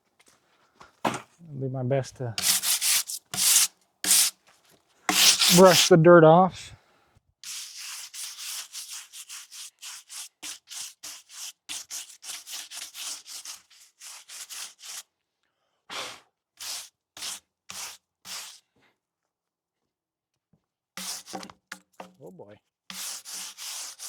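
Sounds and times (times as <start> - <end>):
brush scrubbing log bark: 2.4 - 4.4, 5.1 - 6.0, 7.4 - 15.0, 21.0 - 21.4, 22.9 - 24.0.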